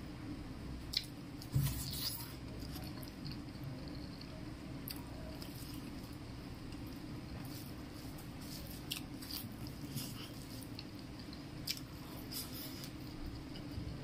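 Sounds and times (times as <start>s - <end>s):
person chewing wet mouth noises: 8.6s - 13.7s.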